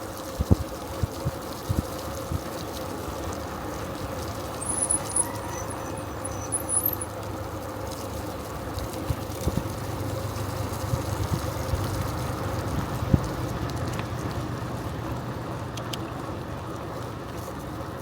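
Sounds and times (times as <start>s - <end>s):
bicycle tyre and wind noise: 0.0s - 18.0s
faint high chirps: 4.5s - 7.3s.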